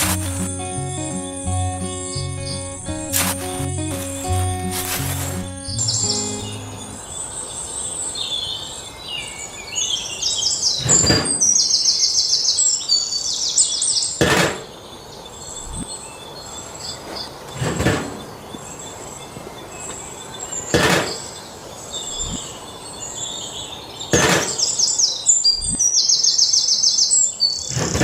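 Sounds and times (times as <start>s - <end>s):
birds chirping: 0.0s - 17.6s
brief rushing noises: 3.1s - 6.1s.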